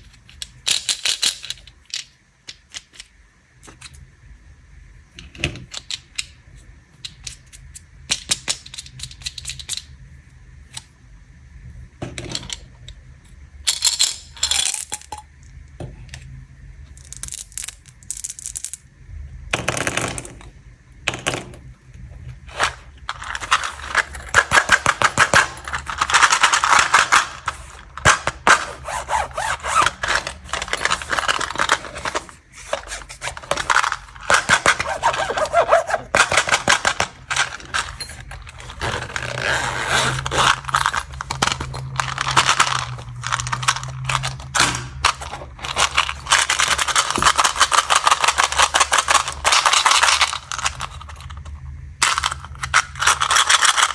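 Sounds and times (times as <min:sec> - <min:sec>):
plastic wrappers crinkling: 0:22.4 - 0:53.9.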